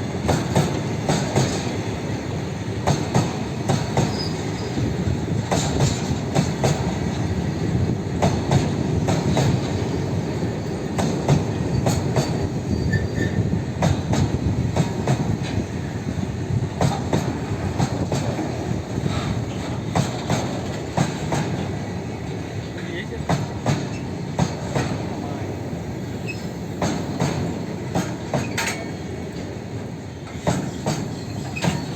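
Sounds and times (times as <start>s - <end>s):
train wagons rumbling: 0.0s - 31.9s
wheels clicking over rail joints: 26.2s - 29.6s, 30.2s - 31.9s.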